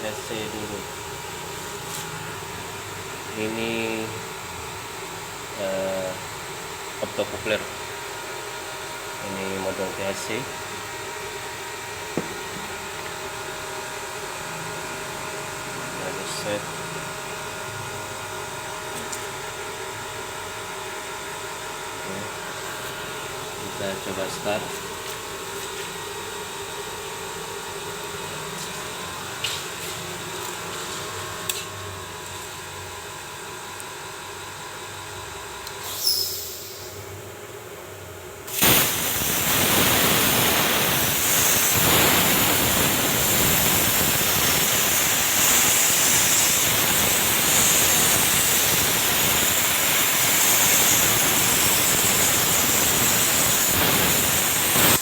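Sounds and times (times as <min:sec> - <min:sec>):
plasma cutter hissing: 0:35.8 - 0:37.0, 0:38.5 - 0:55.0.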